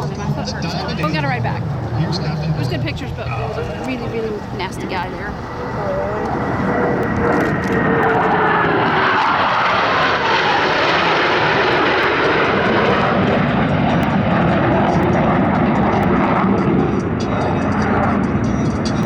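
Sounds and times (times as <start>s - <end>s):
jets roaring past: 0.0s - 19.0s.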